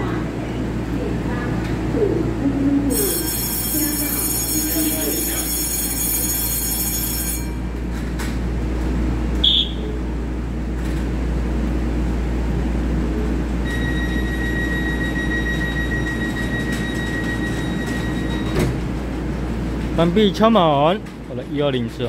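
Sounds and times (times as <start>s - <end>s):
electric train humming: 0.0s - 20.8s
high-pitched tone: 2.4s - 7.6s
high beep: 9.4s - 9.9s.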